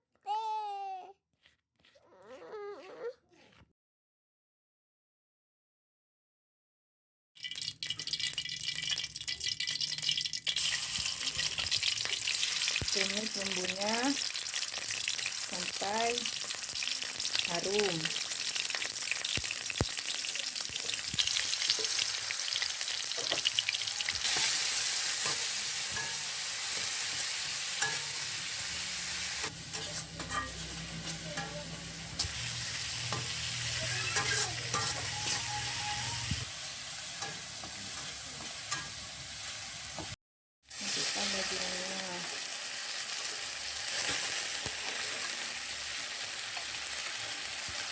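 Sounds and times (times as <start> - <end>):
spice paste sizzling in hot oil: 7.4 - 47.9
spatula scraping a pan: 20.1 - 39.1.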